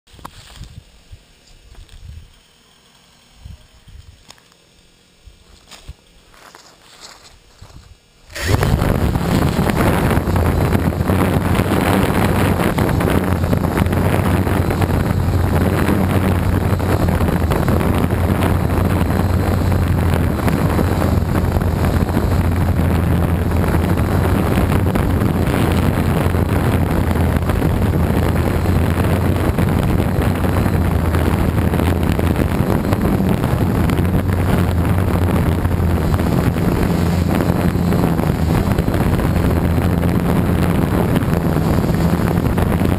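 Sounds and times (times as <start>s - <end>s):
quadcopter motors humming: 0.1s - 42.9s
wind on microphone: 0.4s - 2.4s, 7.6s - 42.9s.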